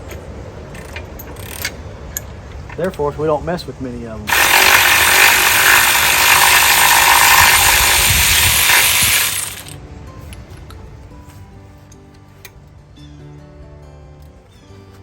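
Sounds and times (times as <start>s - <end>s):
power tool running: 4.3s - 9.8s
quiet background music: 9.8s - 15.0s.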